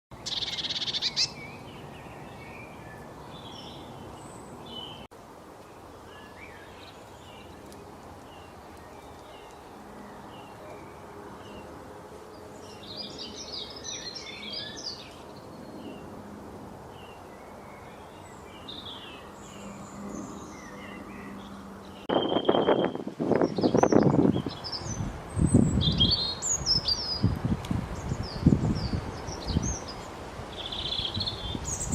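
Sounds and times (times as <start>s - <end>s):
small birds chirping: 0.1s - 16.1s, 16.9s - 31.9s.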